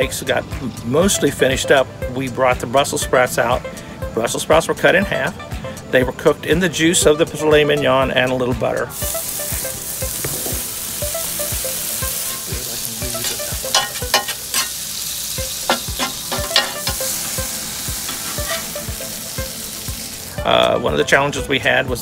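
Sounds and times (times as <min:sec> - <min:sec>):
food sizzling on a griddle: 0:08.7 - 0:22.0
crackling pops: 0:09.1 - 0:10.9.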